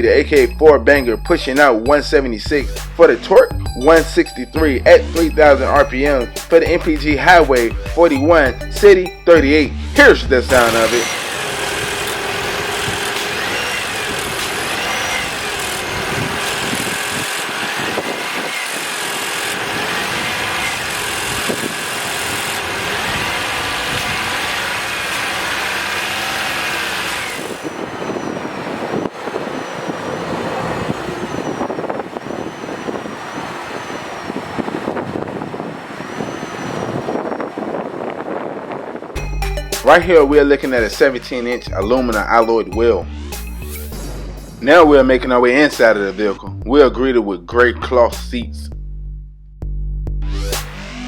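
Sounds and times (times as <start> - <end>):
car engine running: 10.5 - 36.2.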